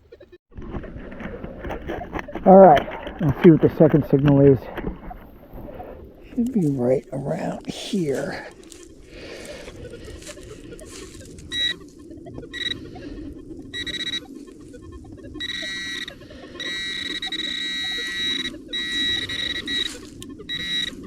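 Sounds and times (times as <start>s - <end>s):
metal detector beeping tone: 6.4s - 21.0s.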